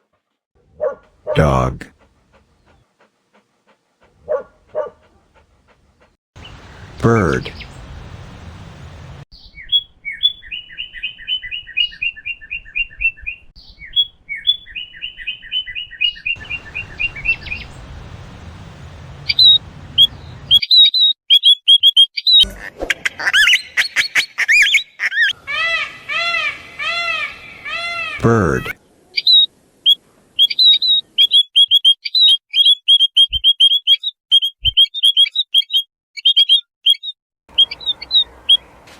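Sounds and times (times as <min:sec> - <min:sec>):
birds chirping: 0:01.3 - 0:38.9
bird arching call: 0:16.4 - 0:22.6, 0:23.3 - 0:28.2, 0:29.2 - 0:38.6.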